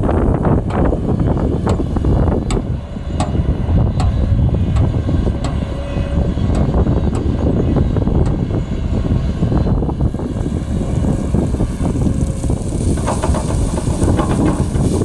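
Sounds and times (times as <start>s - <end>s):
diesel machinery engine drone: 0.0s - 15.0s
metallic clanks and rattles: 12.5s - 15.0s.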